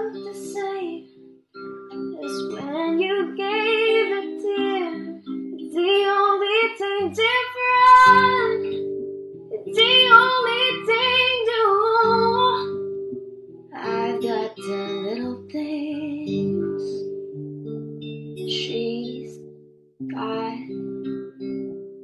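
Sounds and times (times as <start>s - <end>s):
woman singing: 0.0s - 1.1s, 1.9s - 12.9s, 13.7s - 17.1s, 18.4s - 19.4s, 20.0s - 20.9s
plucked acoustic guitar: 0.0s - 22.0s.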